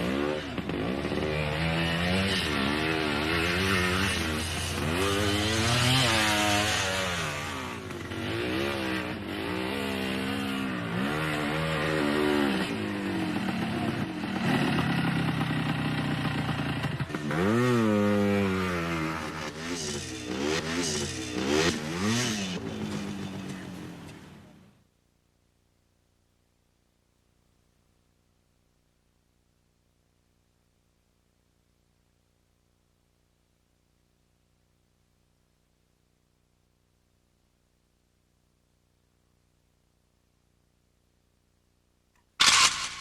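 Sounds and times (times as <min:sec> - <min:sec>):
two-stroke motorcycle engine revving: 0:00.0 - 0:24.2, 0:42.4 - 0:43.0.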